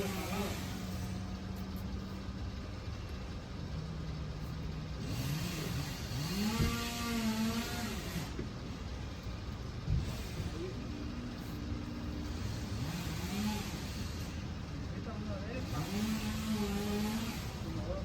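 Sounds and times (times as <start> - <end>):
chainsaw engine revving: 0.0 - 1.4, 5.0 - 8.4, 9.9 - 14.7, 15.4 - 18.0.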